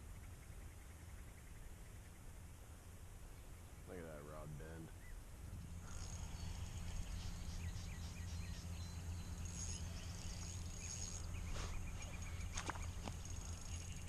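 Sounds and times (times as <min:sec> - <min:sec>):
bird chirps: 0:04.9 - 0:14.0
high insect-like tone: 0:05.5 - 0:14.0.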